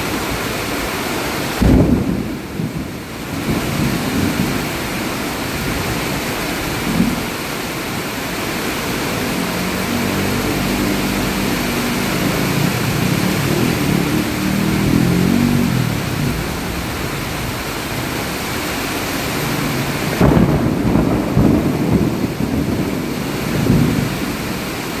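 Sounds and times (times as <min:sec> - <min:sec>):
steady rain: 0:00.0 - 0:25.0
sharp thunderclap: 0:01.6 - 0:04.8, 0:20.0 - 0:24.4
thunder rumbling: 0:01.6 - 0:08.0, 0:09.0 - 0:24.9.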